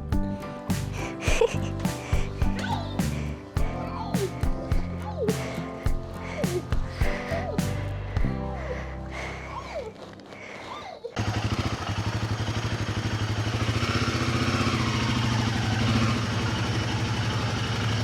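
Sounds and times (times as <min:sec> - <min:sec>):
motorcycle engine idling: 0:11.2 - 0:18.0.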